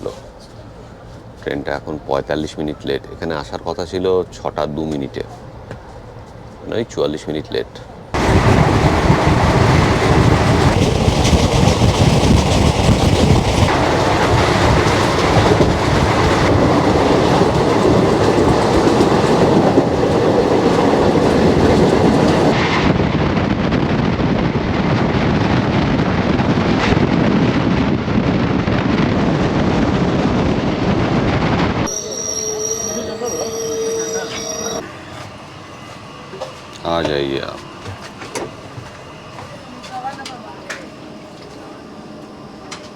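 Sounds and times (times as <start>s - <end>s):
train wheels rumbling on rails: 3.8s - 42.9s
clickety-clack of track: 8.2s - 22.6s.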